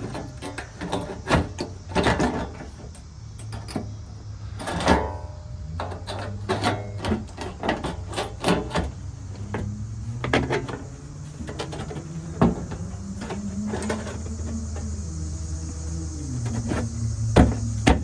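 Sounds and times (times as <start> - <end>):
hammer knocks on metal panels: 17.3 - 18.0.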